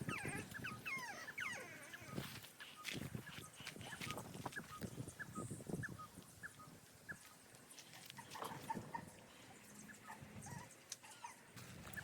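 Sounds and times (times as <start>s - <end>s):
small dog whimpering: 0.0s - 2.3s, 10.0s - 11.4s.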